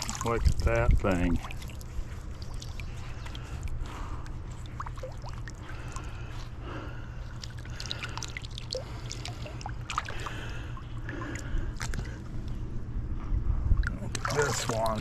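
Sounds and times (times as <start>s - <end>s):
small water plops and splashes: 0.0s - 3.8s, 4.6s - 6.1s, 7.3s - 12.2s, 13.8s - 15.0s
water trickling and dripping: 0.0s - 6.2s, 7.3s - 12.2s, 13.8s - 15.0s.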